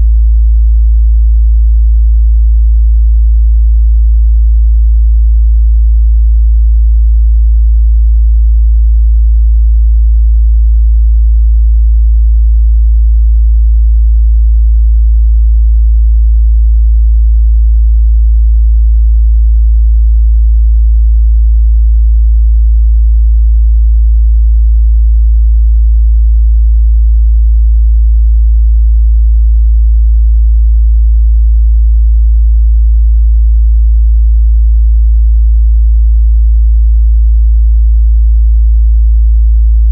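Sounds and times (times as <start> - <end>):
low bass test tone hum: 0.0 - 39.0, 39.6 - 39.9.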